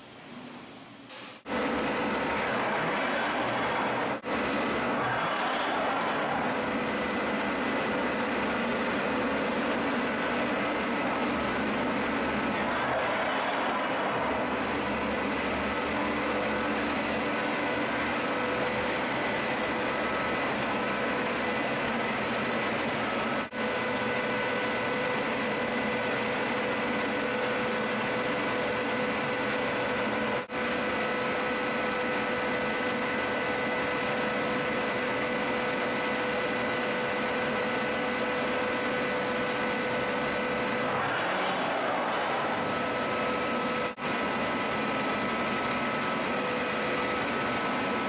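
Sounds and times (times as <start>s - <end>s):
rush of machine noise: 1.5s - 25.0s, 35.3s - 48.0s
router spindle whine: 1.5s - 48.0s.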